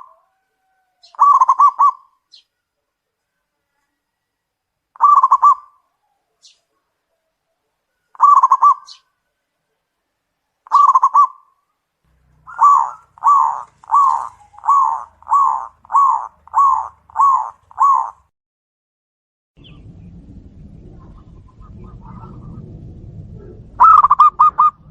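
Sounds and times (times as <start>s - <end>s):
dove cooing: 0.0s - 2.2s, 5.0s - 6.4s, 8.0s - 9.0s, 10.7s - 11.5s, 12.4s - 18.3s, 23.4s - 24.9s.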